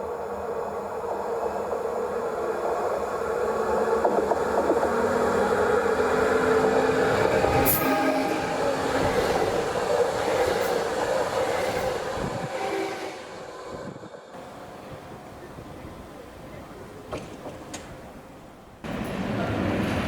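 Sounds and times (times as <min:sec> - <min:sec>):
train passing: 0:00.2 - 0:20.0.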